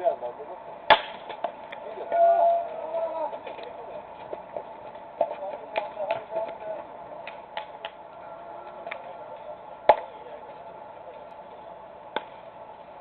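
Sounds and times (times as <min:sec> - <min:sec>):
distant voices: 0:00.0 - 0:13.0
baseball bat crack: 0:00.8 - 0:01.8, 0:07.2 - 0:08.0, 0:08.7 - 0:09.2, 0:09.8 - 0:10.4, 0:12.1 - 0:12.6.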